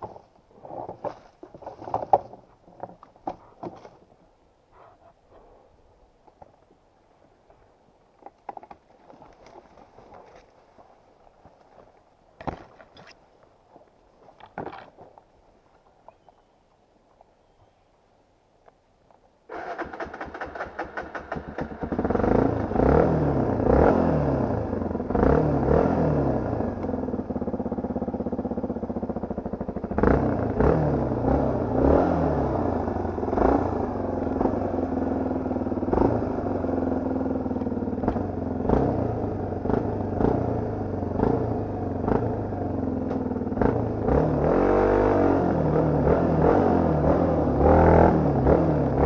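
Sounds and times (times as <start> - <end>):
dirt bike engine revving: 19.5 - 49.0.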